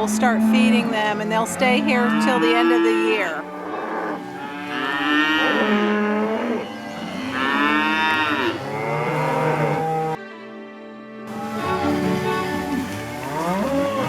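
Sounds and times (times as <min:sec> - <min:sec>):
cows and calves mooing: 0:00.0 - 0:10.2, 0:11.3 - 0:14.0.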